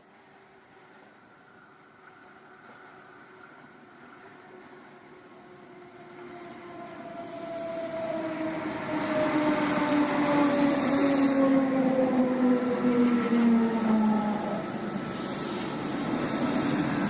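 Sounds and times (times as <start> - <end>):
electric train motor whine: 5.4 - 17.0
running gear hiss: 9.2 - 11.6, 14.6 - 17.0.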